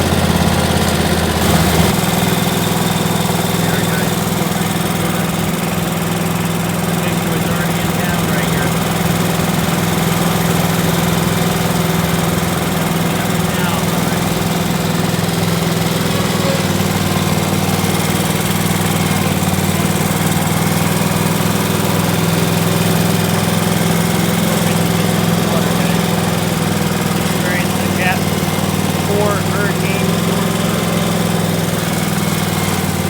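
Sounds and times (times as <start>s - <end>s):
lawn mower engine running: 0.0s - 33.0s.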